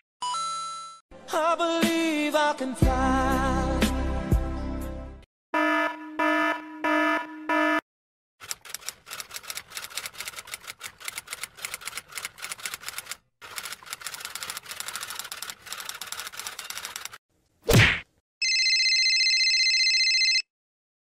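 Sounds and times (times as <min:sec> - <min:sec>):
electronic alarm beeping: 0:05.6 - 0:07.8.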